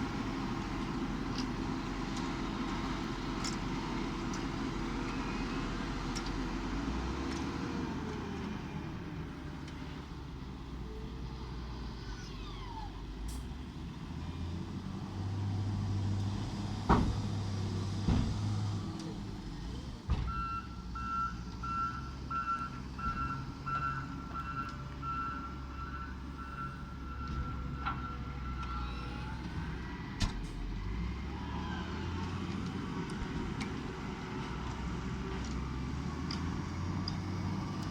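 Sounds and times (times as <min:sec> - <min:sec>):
tractor engine running: 0:00.0 - 0:10.5
reversing alarm beeping: 0:20.3 - 0:29.4.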